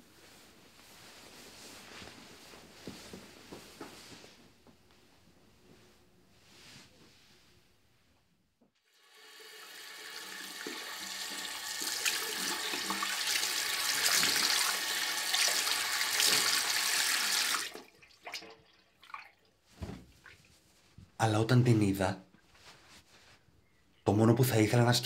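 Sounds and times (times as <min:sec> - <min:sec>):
tap water running into sink: 0:09.0 - 0:19.3.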